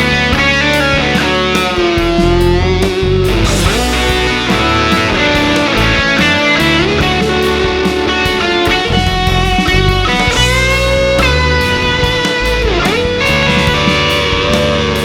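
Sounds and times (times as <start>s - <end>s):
backing track with bass and drums: 0.0s - 15.0s
electric guitar lead line: 0.0s - 15.0s.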